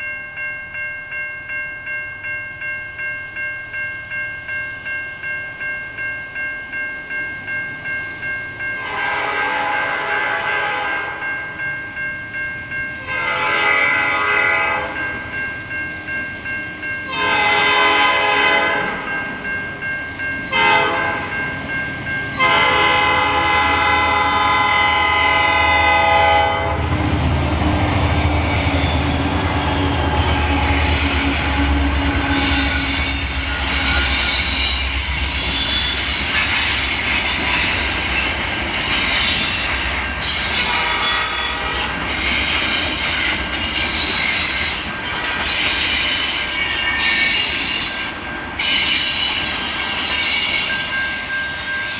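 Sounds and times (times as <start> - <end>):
locomotive horn blasts: 8.8 - 11.2, 13.1 - 15.0, 17.1 - 19.0, 20.5 - 21.3, 22.4 - 27.0, 40.6 - 42.0
wheel squeal: 48.6 - 51.9.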